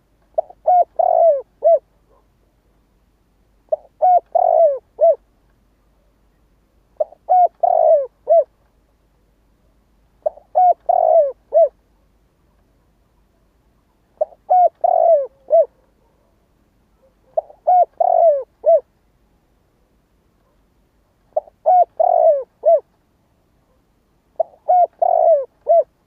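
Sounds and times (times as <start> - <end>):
dove cooing: 0.4 - 2.2, 3.7 - 5.2, 7.0 - 8.6, 10.2 - 11.8, 14.2 - 16.3, 17.0 - 18.9, 21.3 - 22.9, 24.4 - 26.0.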